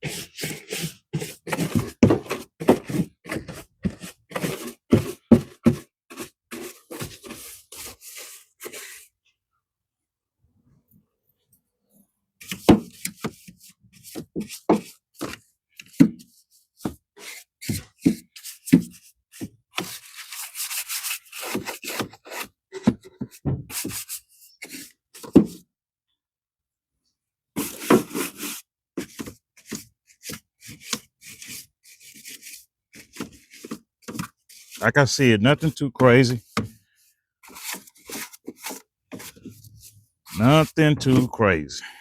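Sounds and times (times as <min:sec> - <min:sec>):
hand brush scrubbing carpet: 0:00.0 - 0:09.0, 0:27.6 - 0:34.9, 0:37.4 - 0:41.4.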